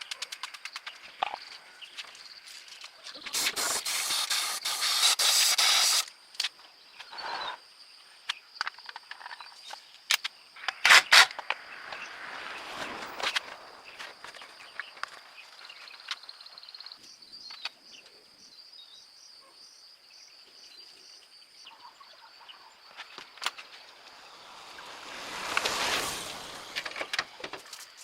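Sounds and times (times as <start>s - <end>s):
loud spray hiss: 3.3s - 6.1s, 23.6s - 27.8s.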